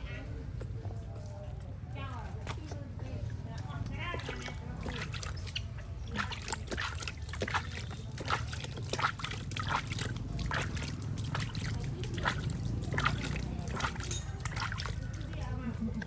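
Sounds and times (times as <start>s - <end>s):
bath water splashing: 4.0s - 16.0s.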